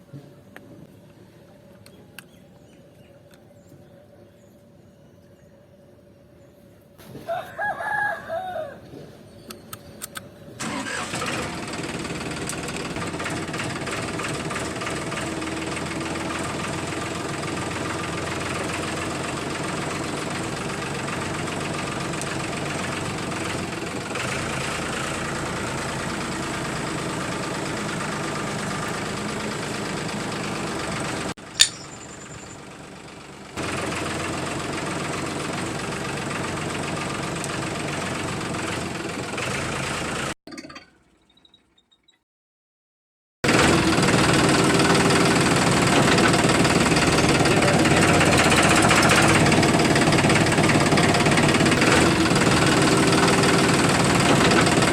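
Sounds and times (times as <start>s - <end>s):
sharp clicks: 9.4s - 10.3s, 31.5s - 32.2s
motor running: 43.5s - 54.9s.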